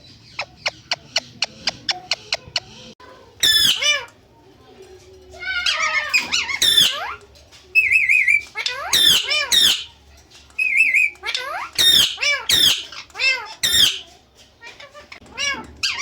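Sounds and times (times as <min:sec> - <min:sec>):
parrot squawking harshly: 0:03.4 - 0:04.1, 0:05.6 - 0:07.1, 0:07.8 - 0:09.9, 0:10.6 - 0:14.1.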